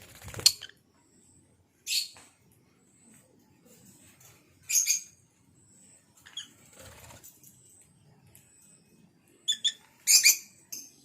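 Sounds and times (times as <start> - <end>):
wings fluttering: 0.0 - 0.8, 6.3 - 7.6
birds chirping high-pitched: 0.0 - 2.4, 4.1 - 11.0.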